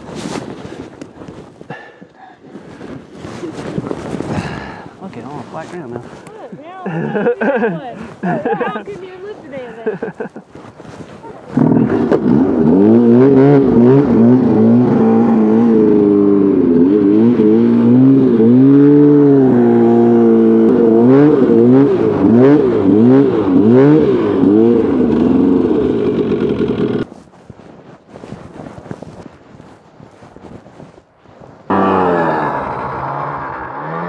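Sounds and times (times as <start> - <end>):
snowmobile engine revving: 4.3 - 10.4, 11.2 - 27.1, 31.7 - 34.0.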